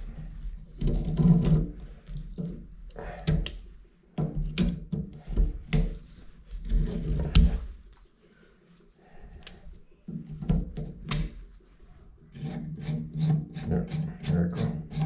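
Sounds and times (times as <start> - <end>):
scraping and rubbing handling noise: 0.0 - 3.8, 5.0 - 15.0
sharp clicks and knocks: 9.4 - 11.4.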